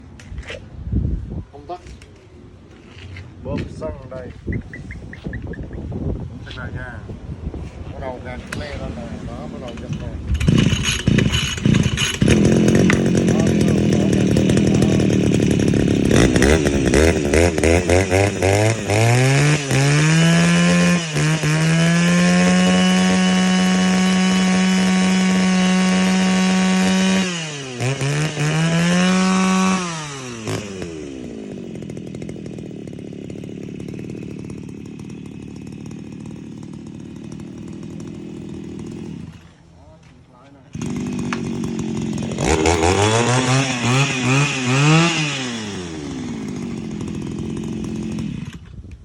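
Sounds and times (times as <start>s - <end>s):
brush cutter engine revving: 8.2s - 39.7s, 40.7s - 49.0s.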